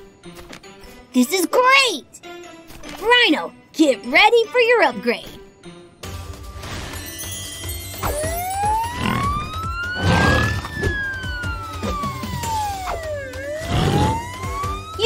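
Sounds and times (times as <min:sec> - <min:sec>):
background music: 0:00.0 - 0:15.0
cartoon ambulance siren wailing: 0:08.0 - 0:15.0.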